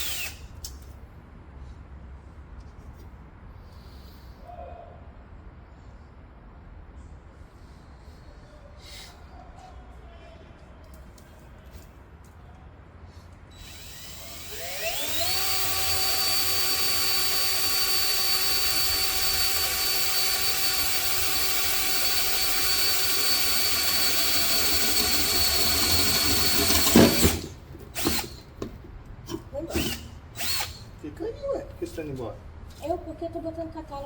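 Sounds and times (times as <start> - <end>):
power tool motor whining: 0.0 - 0.4, 13.6 - 28.5, 29.7 - 30.9.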